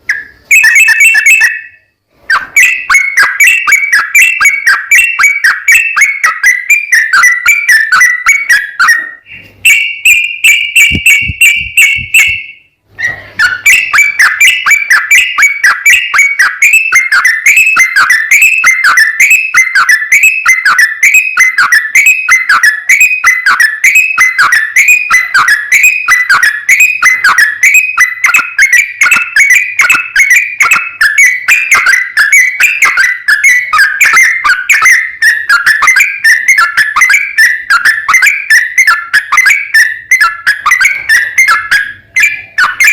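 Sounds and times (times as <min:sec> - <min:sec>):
bulbul rapid whistled song: 0:00.0 - 0:42.9.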